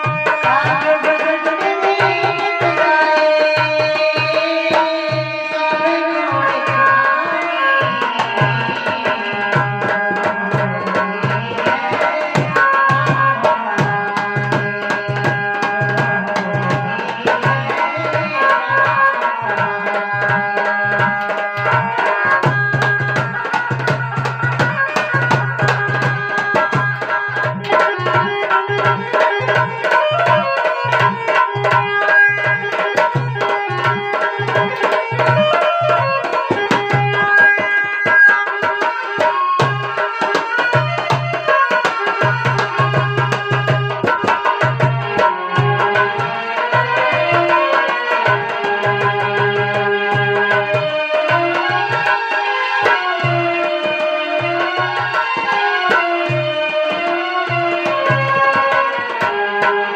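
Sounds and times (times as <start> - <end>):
hand drum beat: 7.8 - 59.6.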